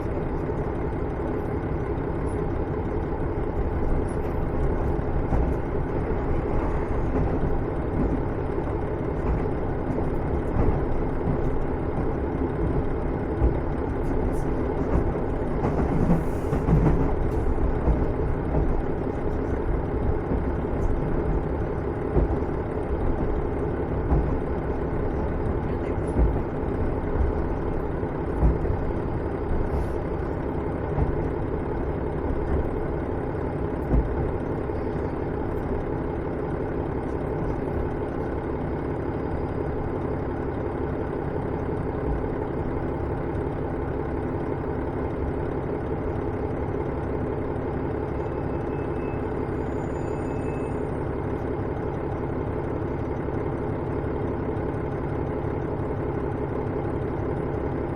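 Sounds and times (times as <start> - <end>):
diesel engine idling: 0.0 - 57.9
train running gear knocking: 0.0 - 57.9.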